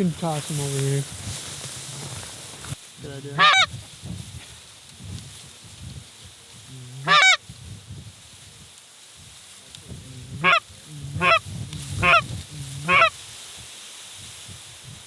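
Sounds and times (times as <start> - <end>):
goose honking: 3.3 - 3.7, 7.0 - 7.4, 10.3 - 13.2.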